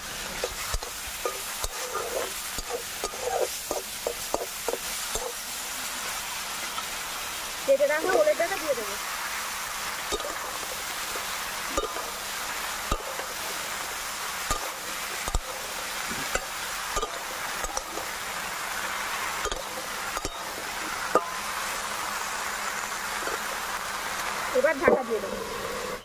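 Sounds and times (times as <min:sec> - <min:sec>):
food sizzling in oil: 0:00.0 - 0:26.0
spatula scraping a pan: 0:00.2 - 0:05.5, 0:10.1 - 0:18.2.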